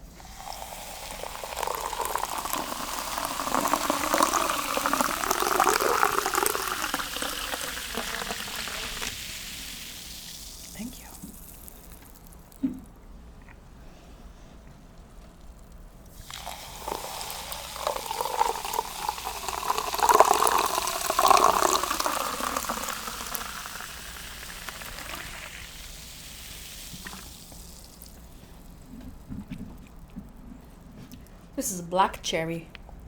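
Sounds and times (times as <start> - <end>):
fizzing hiss: 0.0 - 12.7, 15.3 - 30.0
sparkling water poured into glass: 0.1 - 12.6, 15.4 - 28.9.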